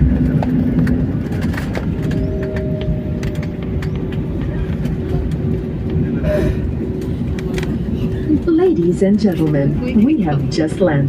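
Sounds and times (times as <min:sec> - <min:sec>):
airliner cabin rumble: 0:00.0 - 0:11.0
higher steady hums: 0:00.0 - 0:11.0
low hum: 0:00.0 - 0:11.0.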